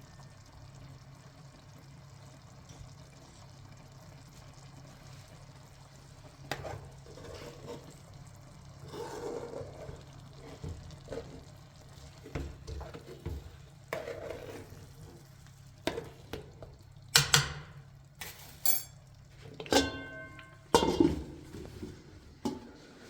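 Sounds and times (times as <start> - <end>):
dishes and utensils clinking: 17.2 - 19.0, 19.6 - 21.8.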